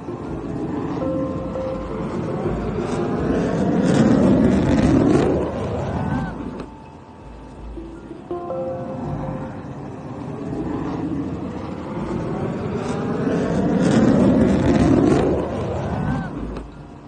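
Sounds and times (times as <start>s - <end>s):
loud rushing rumble: 0.0s - 17.0s.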